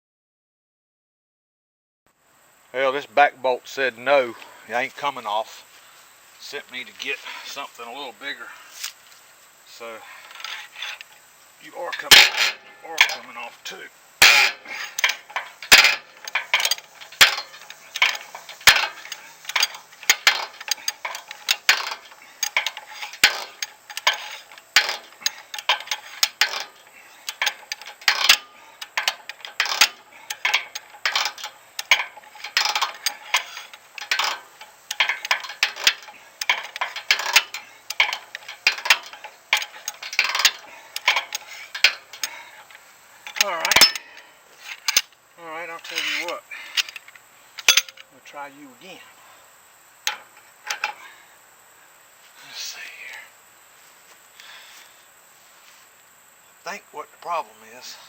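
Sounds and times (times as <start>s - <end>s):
hand tools clicking on metal: 10.2s - 48.1s, 50.0s - 51.0s.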